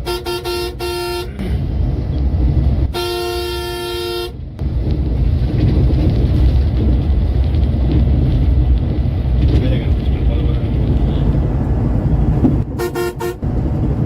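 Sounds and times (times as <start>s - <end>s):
vehicle horn blasts: 0.0s - 1.3s, 2.9s - 4.4s, 12.8s - 13.4s
engine and road rumble: 0.0s - 14.0s.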